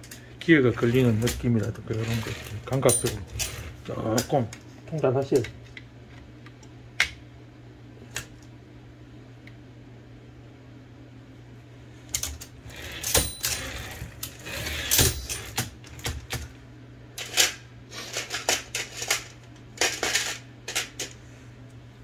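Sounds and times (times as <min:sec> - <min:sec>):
typewriter parts clicking and rattling: 0:00.8 - 0:04.4, 0:14.8 - 0:16.4.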